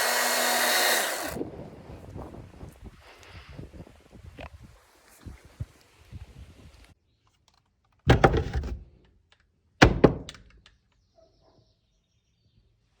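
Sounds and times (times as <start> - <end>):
loud thunks with rattle: 8.1 - 8.9, 9.8 - 10.5.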